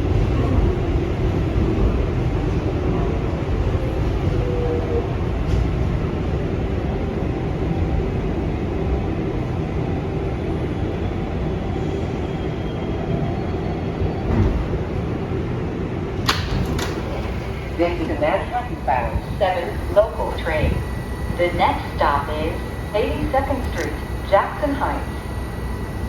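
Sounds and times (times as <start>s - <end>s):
subway train rumbling: 0.0s - 26.0s
faint whine: 17.0s - 26.0s.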